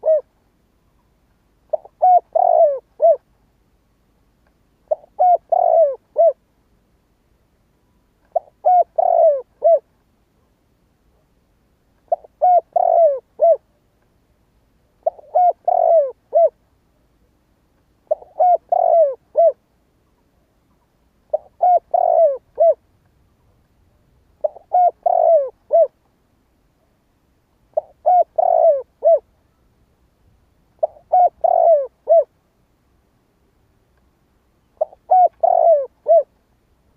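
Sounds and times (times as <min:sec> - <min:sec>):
dove cooing: 0:00.0 - 0:00.3, 0:01.7 - 0:03.3, 0:04.9 - 0:06.4, 0:08.3 - 0:09.9, 0:12.1 - 0:13.7, 0:15.0 - 0:16.6, 0:18.1 - 0:19.6, 0:21.3 - 0:22.8, 0:24.4 - 0:26.0, 0:27.7 - 0:29.3, 0:30.8 - 0:32.3, 0:34.7 - 0:36.3.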